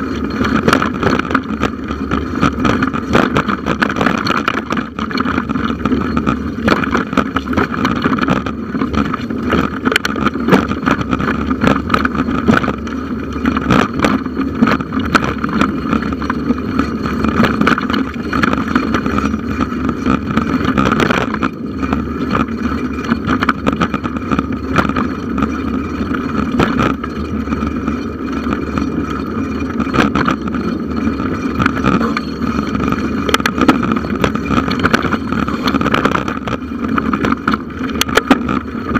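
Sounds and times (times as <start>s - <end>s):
bicycle tyres rumbling: 0.0s - 38.9s
bike knocks and rattles: 0.0s - 38.9s
wind on microphone: 0.0s - 38.9s.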